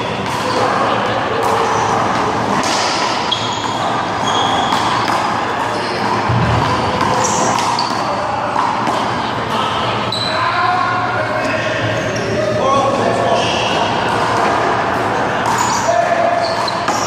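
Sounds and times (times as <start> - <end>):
steady noisy background: 0.0 - 17.0
handball hitting wall and ground: 1.4 - 9.1, 15.4 - 17.0
short high squeaks: 3.2 - 5.1, 15.6 - 17.0.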